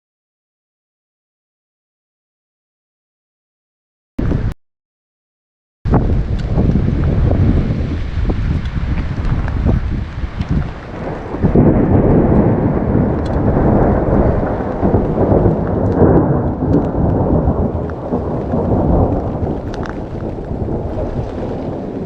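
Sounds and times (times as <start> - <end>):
thunder rumbling: 5.9 - 22.0.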